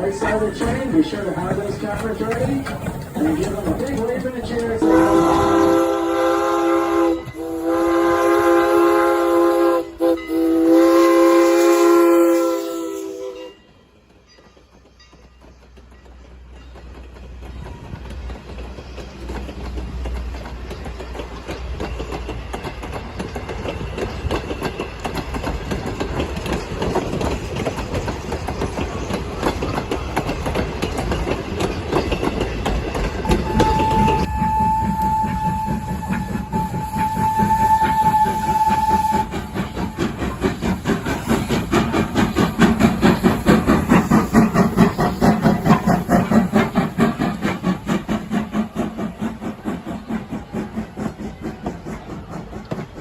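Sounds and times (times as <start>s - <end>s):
steam locomotive chime whistle: 0.0s - 16.2s, 33.2s - 40.6s
train wheels clickety-clack on rails: 0.0s - 53.0s.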